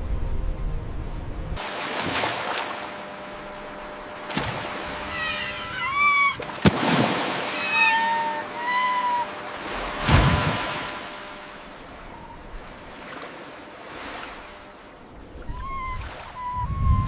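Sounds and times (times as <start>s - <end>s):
sea wash: 1.6s - 17.0s
wavering mewing animal calls: 3.4s - 6.6s, 7.2s - 13.3s, 15.2s - 17.0s
sharp slap: 6.6s - 7.0s.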